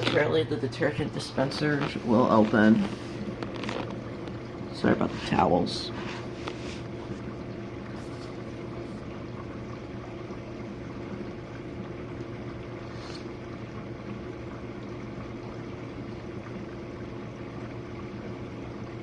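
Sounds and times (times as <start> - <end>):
dishwasher pump motor humming: 0.0 - 19.0
water spraying inside dishwasher: 4.6 - 9.3.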